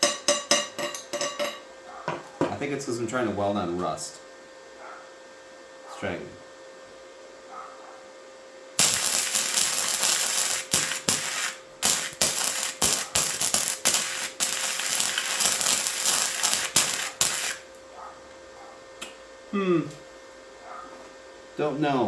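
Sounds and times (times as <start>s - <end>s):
welding arc crackling and sputtering: 8.8s - 17.8s.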